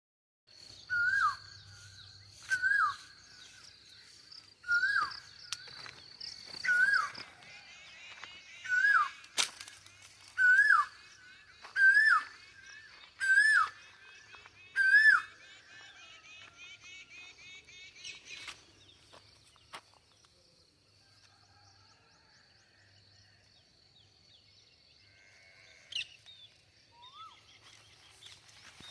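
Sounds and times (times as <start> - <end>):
bird whistled call: 0.9 - 1.5, 2.5 - 3.0, 10.4 - 11.0, 13.2 - 13.8
flock of small birds chattering: 25.0 - 28.9.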